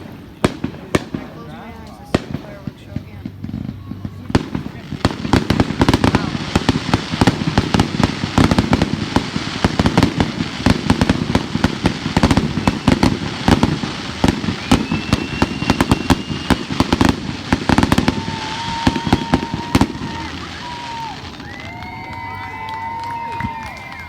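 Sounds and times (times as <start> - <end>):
fireworks bangs and crackles: 0.0 - 24.0
firework whistle: 5.1 - 24.0.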